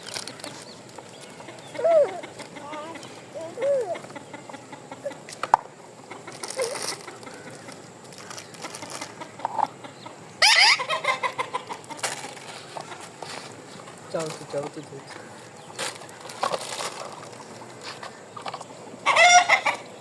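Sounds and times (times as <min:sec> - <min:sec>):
bird calling: 0:00.0 - 0:20.0
harsh bird squawk: 0:01.4 - 0:05.2, 0:10.4 - 0:11.6, 0:19.0 - 0:19.8.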